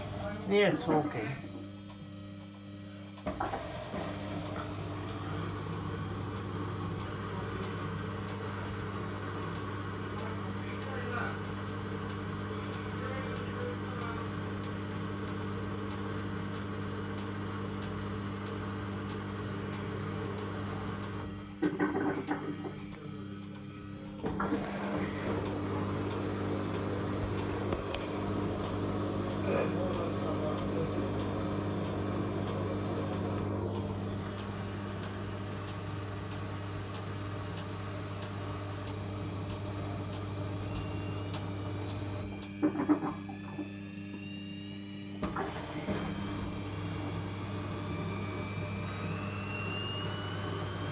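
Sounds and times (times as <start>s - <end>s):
washing machine humming: 0.0s - 50.9s
faint regular ticking: 3.8s - 21.6s, 25.4s - 42.6s.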